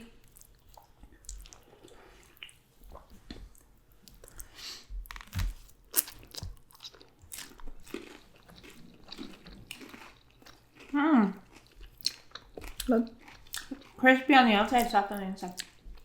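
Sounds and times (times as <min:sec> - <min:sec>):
chewing crispy fried food: 0:00.0 - 0:16.0.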